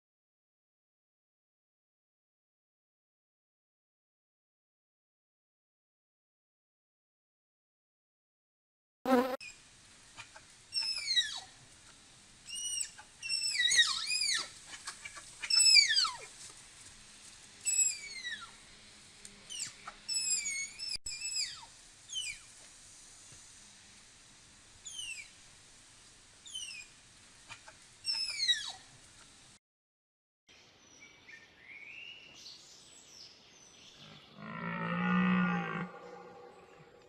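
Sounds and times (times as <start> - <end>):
tapir squealing whistles: 12.5 - 14.5, 19.5 - 22.4.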